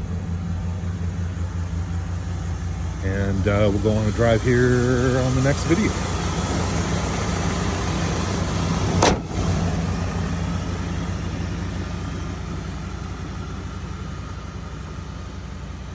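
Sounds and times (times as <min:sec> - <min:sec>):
truck engine idling: 0:00.0 - 0:15.9
sharp loud thump: 0:08.9 - 0:09.4.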